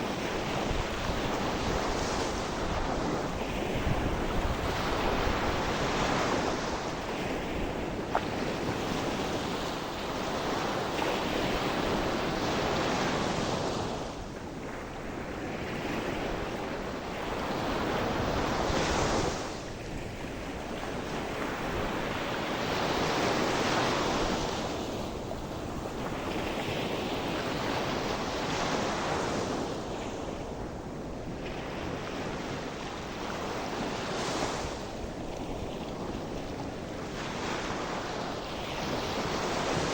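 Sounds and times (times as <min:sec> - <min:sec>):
waves breaking on shore: 0:00.0 - 0:39.9
wind on microphone: 0:00.0 - 0:39.9.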